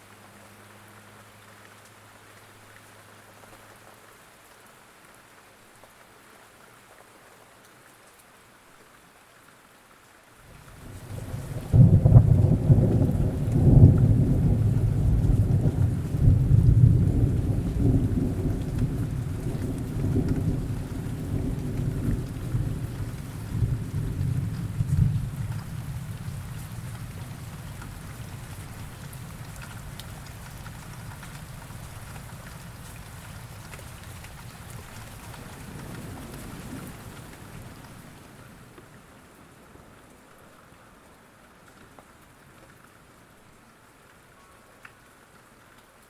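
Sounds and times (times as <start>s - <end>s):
steady rain falling: 0.0s - 46.0s
roll of thunder: 10.7s - 30.4s.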